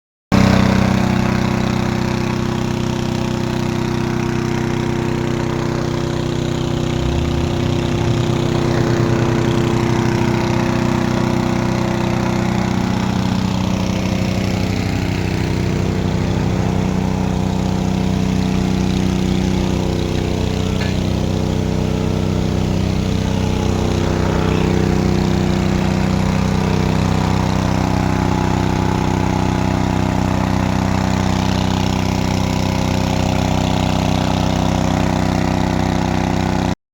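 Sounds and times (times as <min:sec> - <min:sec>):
pump engine running: 0:00.3 - 0:36.8.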